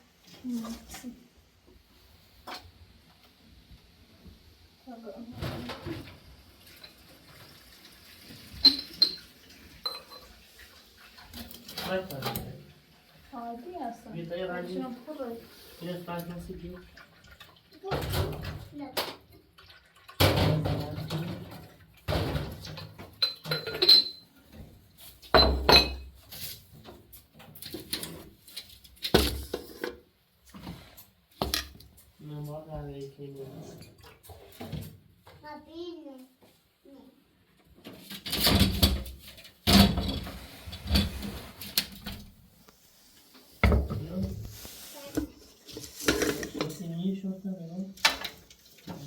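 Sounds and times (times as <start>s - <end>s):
knocks and thumps: 43.6s - 44.4s.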